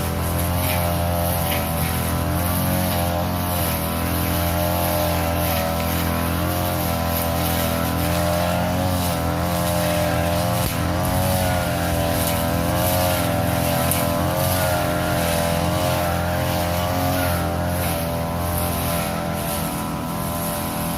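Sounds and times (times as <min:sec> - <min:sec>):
brush cutter engine cutting grass: 0:00.0 - 0:20.9.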